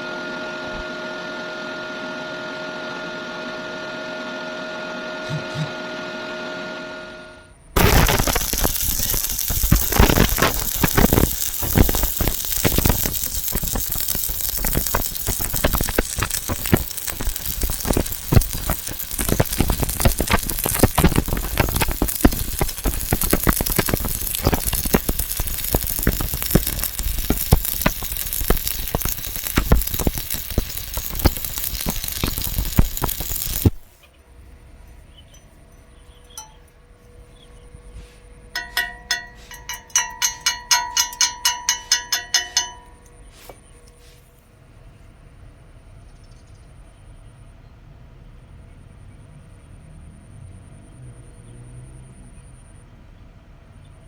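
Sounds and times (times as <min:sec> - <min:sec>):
welding arc crackling: 0:07.8 - 0:34.0, 0:38.6 - 0:43.2.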